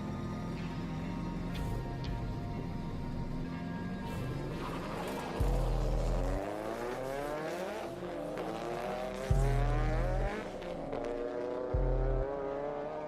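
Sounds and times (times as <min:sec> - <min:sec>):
car engine accelerating: 0:00.0 - 0:13.0
music with deep bass: 0:00.0 - 0:13.0.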